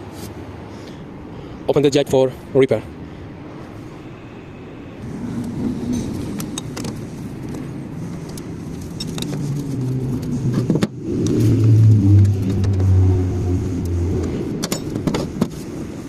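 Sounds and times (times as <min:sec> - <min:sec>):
motor droning: 0:09.0 - 0:14.6.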